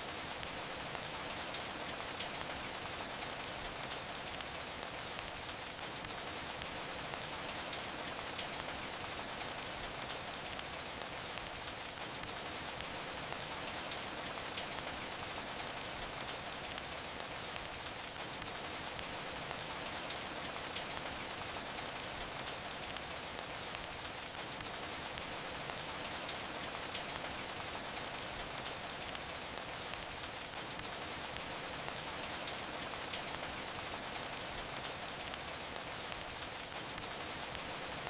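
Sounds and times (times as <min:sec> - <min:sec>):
steady rain hiss: 0:00.0 - 0:38.0
wood fire crackling: 0:00.1 - 0:38.0.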